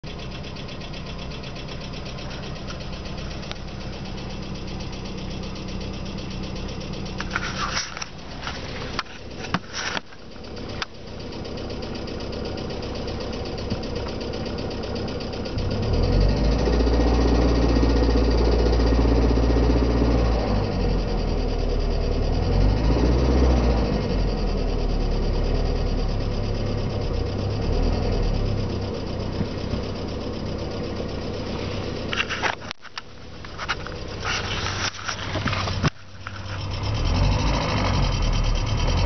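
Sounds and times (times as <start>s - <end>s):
car engine idling with knocking: 0.0s - 39.0s.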